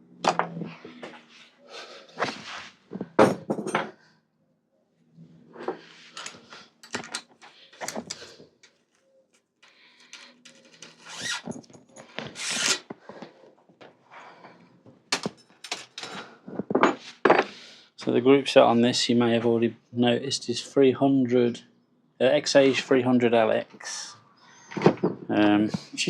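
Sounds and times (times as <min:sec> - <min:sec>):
metal bicycle parts clinking: 0:06.1 - 0:08.8, 0:09.6 - 0:12.4, 0:15.2 - 0:16.2.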